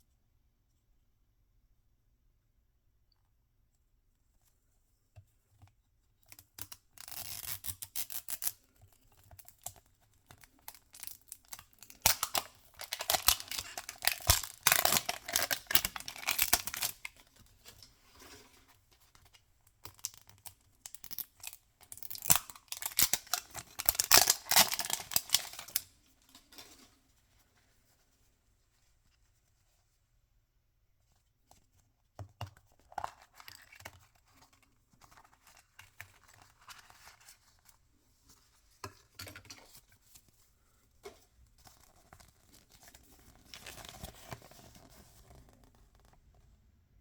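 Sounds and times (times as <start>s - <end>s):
plastic packaging crinkling: 10.7s - 17.9s, 20.0s - 26.7s.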